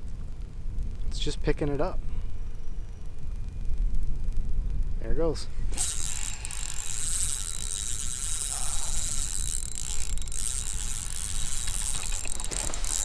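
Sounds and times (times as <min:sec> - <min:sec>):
wind rumble on microphone: 0:00.0 - 0:13.0
fishing reel gears clicking: 0:05.7 - 0:13.0.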